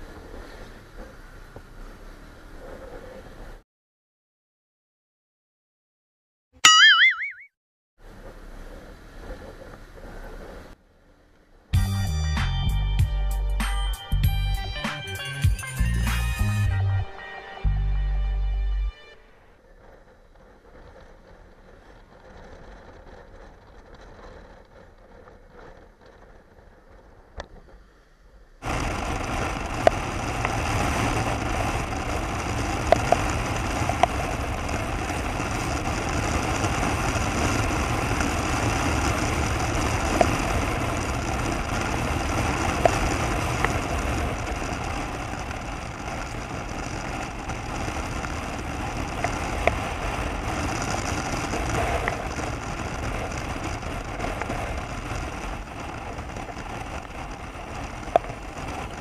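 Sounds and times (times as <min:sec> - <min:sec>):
motorcycle engine hum: 0:00.0 - 0:03.6, 0:19.2 - 0:59.0
sharp ticks: 0:56.3 - 0:59.0.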